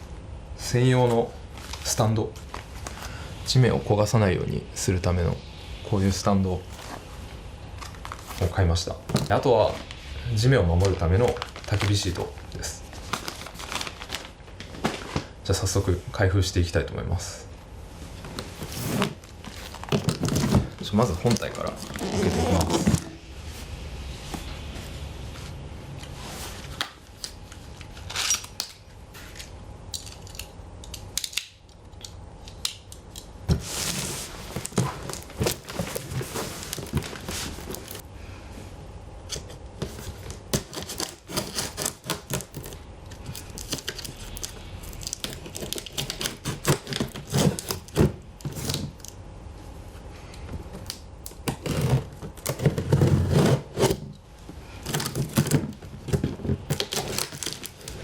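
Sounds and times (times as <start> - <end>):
packaging rustling and scraping: 6.6 - 15.8, 18.2 - 29.5, 33.5 - 38.0, 39.3 - 48.9, 51.5 - 58.0.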